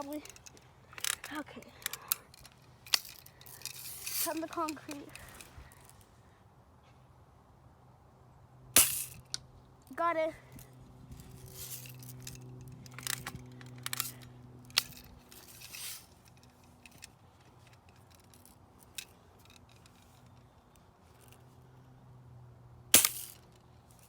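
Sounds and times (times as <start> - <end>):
rifle handling clicks: 0.0 - 5.9, 12.2 - 15.6.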